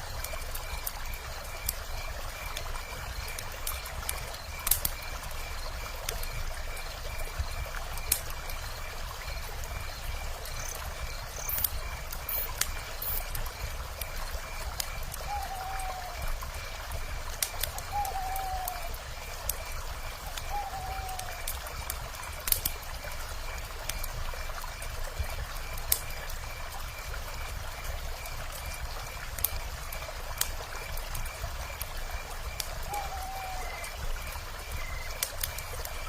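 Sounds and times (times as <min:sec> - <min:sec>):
wood fire crackling and popping: 0:00.1 - 0:05.4, 0:06.0 - 0:09.7, 0:10.3 - 0:23.2, 0:23.8 - 0:36.0
owl calling: 0:15.2 - 0:16.2, 0:17.9 - 0:18.9, 0:20.5 - 0:21.4, 0:32.9 - 0:33.9.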